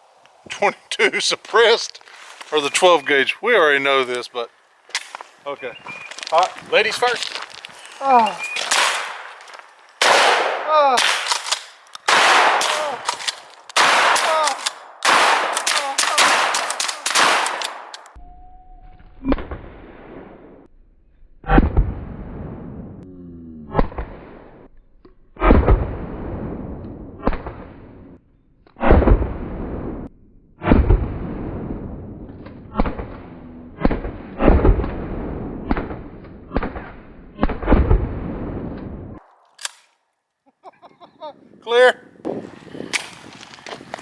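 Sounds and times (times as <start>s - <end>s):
gunshots with echoing tail: 8.5s - 9.4s, 10.0s - 18.1s, 28.8s - 39.7s.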